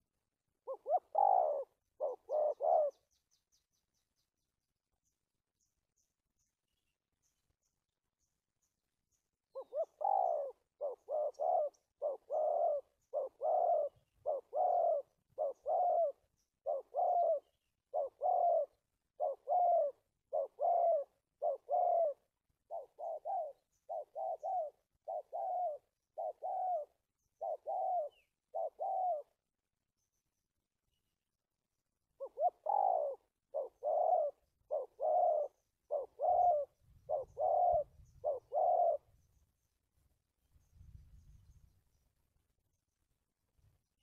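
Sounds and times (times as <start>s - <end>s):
dove cooing: 0.6s - 3.2s, 9.5s - 29.5s, 32.1s - 39.3s.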